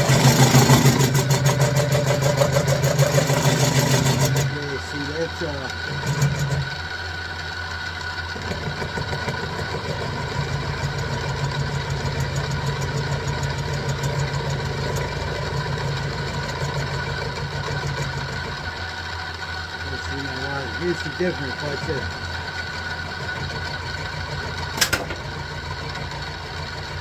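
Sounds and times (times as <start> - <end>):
cutter cutting steel: 0.0 - 6.8, 24.8 - 25.3
milling machine motor hum: 0.0 - 27.0.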